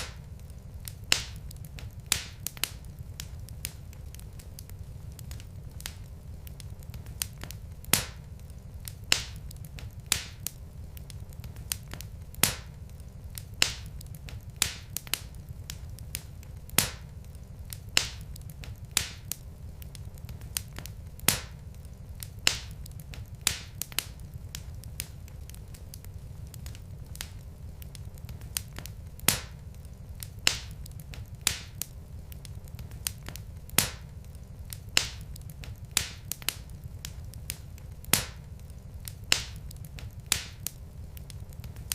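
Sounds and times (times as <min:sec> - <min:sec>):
fire crackling and popping: 0:00.0 - 0:41.9
low rumble of flames: 0:00.0 - 0:41.9.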